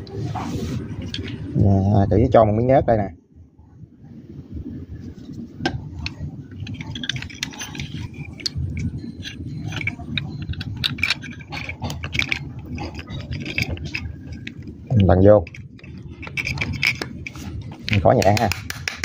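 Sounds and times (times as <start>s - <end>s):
low background rumble: 0.0s - 19.0s
metal parts clicking and tapping: 6.0s - 18.6s.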